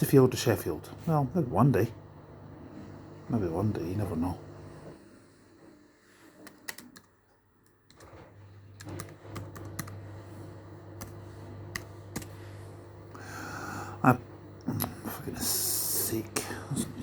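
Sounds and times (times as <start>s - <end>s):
laptop keyboard typing: 6.4s - 7.2s, 8.8s - 10.0s, 11.0s - 12.4s.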